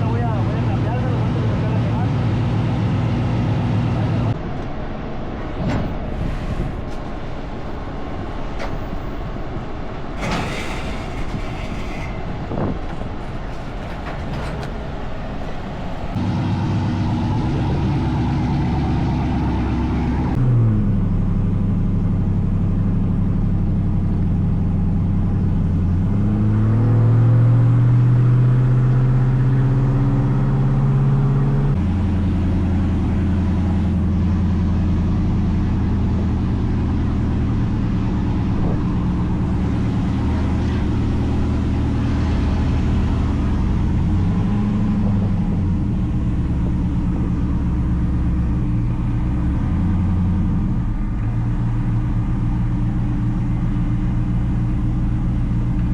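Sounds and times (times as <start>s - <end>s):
knocks and clatter: 5.4s - 16.2s
vehicle engine running: 28.7s - 55.9s.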